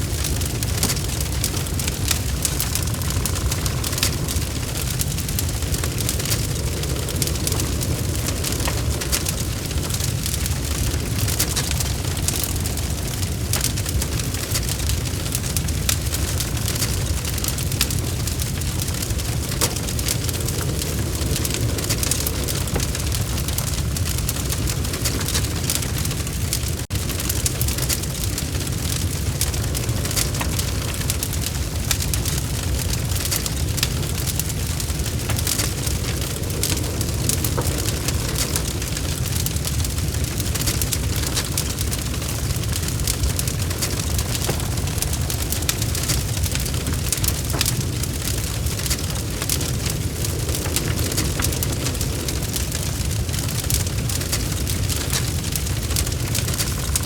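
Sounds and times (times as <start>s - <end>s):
fire crackling and popping: 0.0s - 57.0s
fire low rumble: 0.0s - 57.0s.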